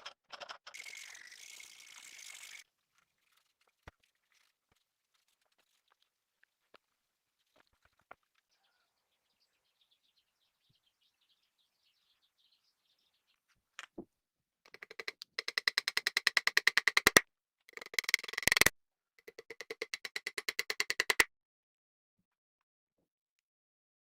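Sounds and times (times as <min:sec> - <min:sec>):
small hammer tapping metal: 0:14.7 - 0:21.3.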